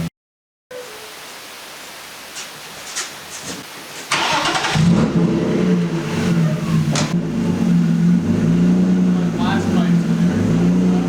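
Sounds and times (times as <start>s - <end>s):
car engine cranking and idling: 4.1s - 11.0s.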